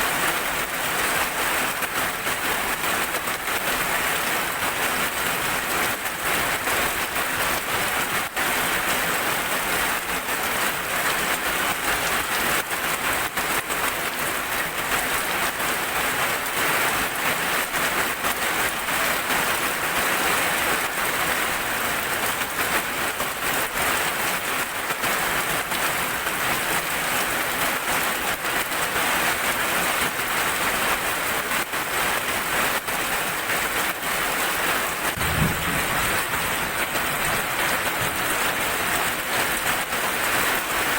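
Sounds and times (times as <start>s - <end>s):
heavy rain falling: 0.0s - 40.9s
low thump: 35.2s - 37.6s.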